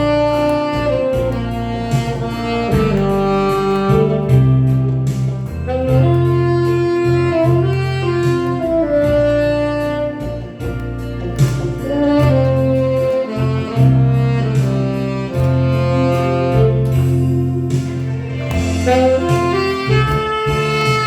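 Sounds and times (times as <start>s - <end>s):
low bass line: 0.0s - 21.0s
saxophone melody: 0.0s - 21.0s
steady beat: 0.0s - 21.0s.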